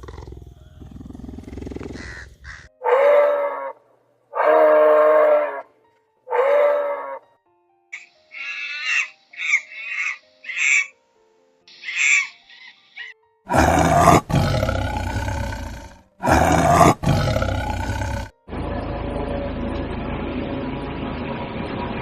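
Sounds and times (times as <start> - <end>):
big cat roaring: 0.0 - 5.7, 13.5 - 18.4.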